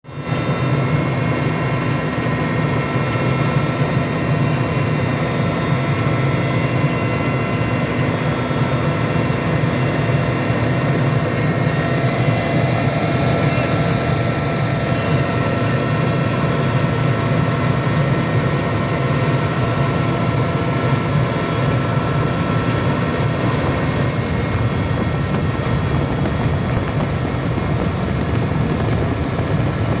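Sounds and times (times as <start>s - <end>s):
faint even whine: 2.6s - 30.0s
low engine rumble: 8.1s - 30.0s.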